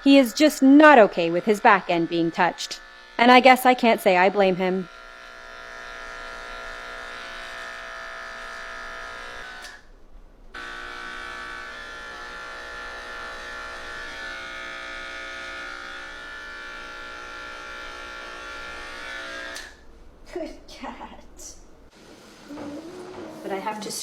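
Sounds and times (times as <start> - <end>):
electric clippers buzzing: 0.0 - 9.9, 10.5 - 19.8.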